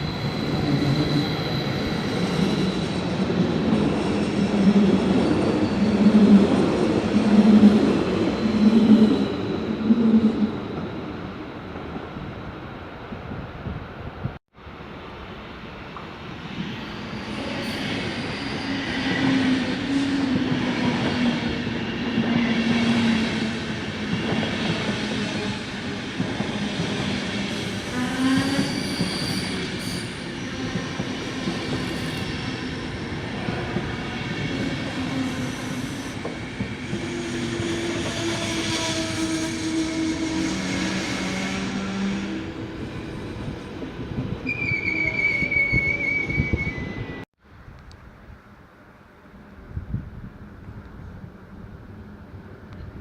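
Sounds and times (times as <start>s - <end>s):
high wheel squeal: 4.2s - 11.0s, 16.6s - 22.6s, 26.6s - 43.6s, 44.4s - 47.3s.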